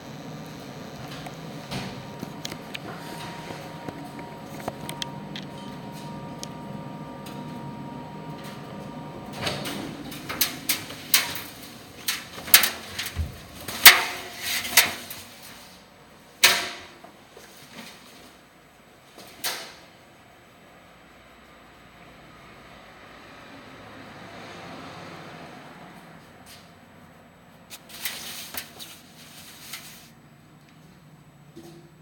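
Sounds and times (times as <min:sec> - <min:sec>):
tumble dryer humming: 0:00.0 - 0:13.5.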